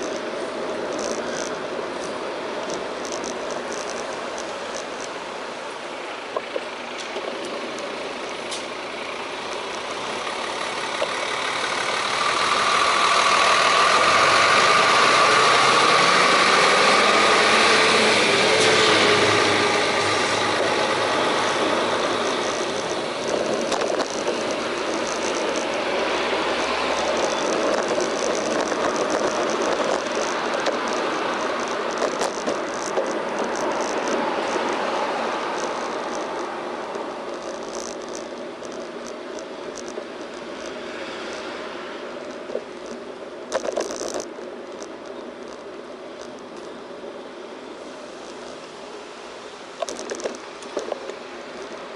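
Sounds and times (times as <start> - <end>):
passing vehicle engine and tyres: 0.0 - 51.9
road and wind noise: 0.0 - 51.9.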